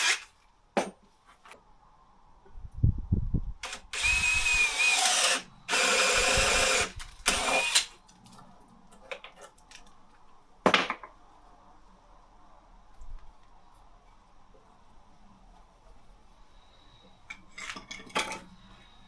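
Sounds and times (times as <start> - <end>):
power drill running: 0.0 - 0.3, 3.6 - 7.9.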